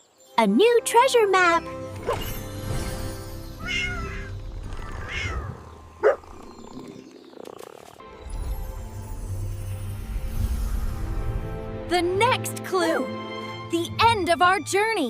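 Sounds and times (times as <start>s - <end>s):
soft background music: 0.0s - 6.9s, 8.0s - 15.0s
cat meowing: 3.6s - 4.3s.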